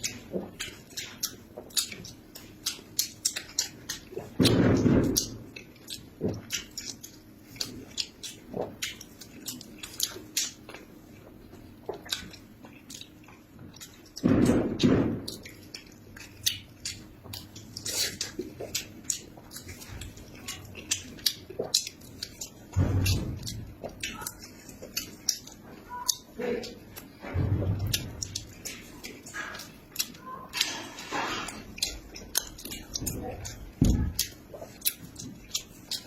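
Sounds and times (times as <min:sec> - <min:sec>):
person chewing food: 0:00.0 - 0:36.0.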